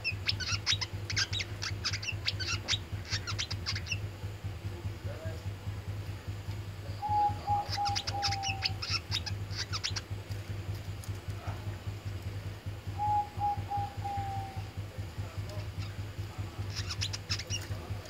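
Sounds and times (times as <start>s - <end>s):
low whistled bird notes: 0.0s - 4.1s, 6.8s - 10.1s, 12.8s - 15.0s
songbird chirping: 0.0s - 18.0s
steady low hum: 0.0s - 18.0s.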